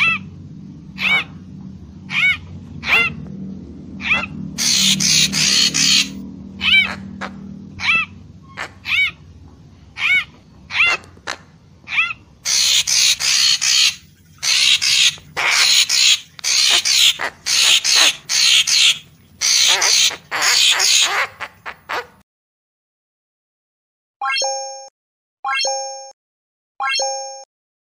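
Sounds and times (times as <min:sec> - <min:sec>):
bird harsh raspy chattering: 0:00.0 - 0:00.3, 0:01.0 - 0:01.5, 0:02.1 - 0:03.2, 0:04.0 - 0:22.2.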